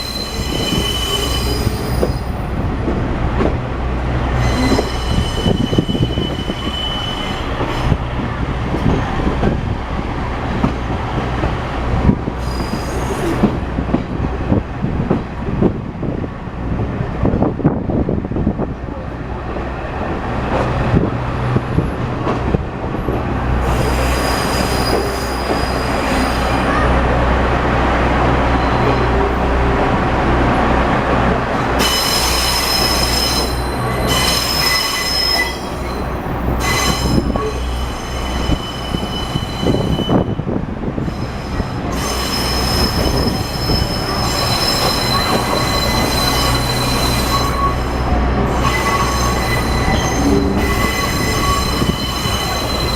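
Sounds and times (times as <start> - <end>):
wheel squeal: 0.0 - 2.4, 4.4 - 7.6, 31.8 - 40.4, 41.2 - 52.9
diesel railcar engine hum: 0.0 - 52.9
train running gear rumbling: 0.0 - 52.9.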